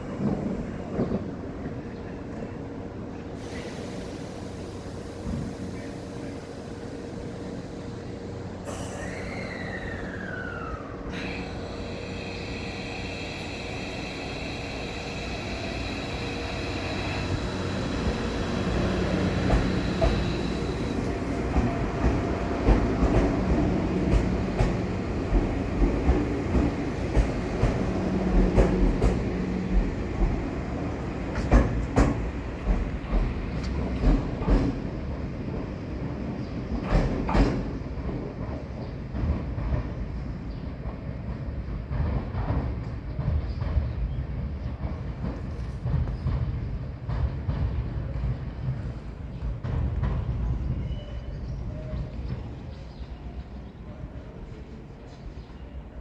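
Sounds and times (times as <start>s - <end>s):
electric train motor whine: 8.6s - 31.0s
wheel squeal: 8.7s - 21.2s
wheels clacking over rail joints: 10.0s - 35.6s.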